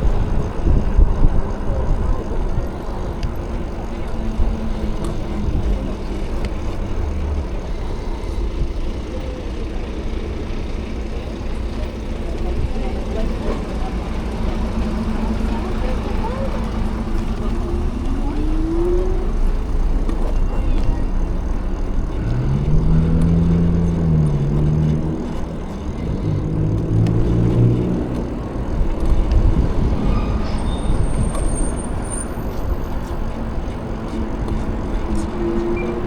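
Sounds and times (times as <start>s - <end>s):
road noise: 0.0s - 36.0s
vehicle engine passing: 0.0s - 36.0s
wind rush: 28.7s - 31.6s.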